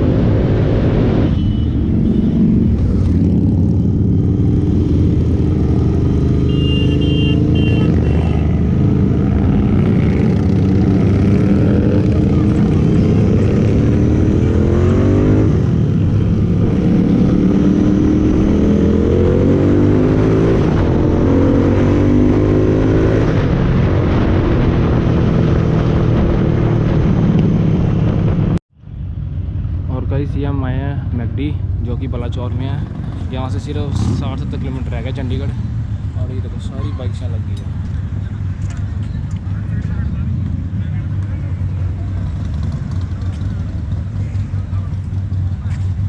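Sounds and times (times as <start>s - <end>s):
motorcycle engine accelerating: 1.8s - 28.6s, 37.4s - 46.0s.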